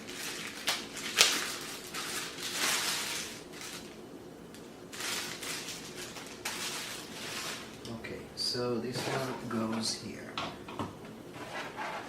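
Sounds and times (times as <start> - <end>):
packaging crinkling and rustling: 0.0 - 4.0, 4.9 - 7.9.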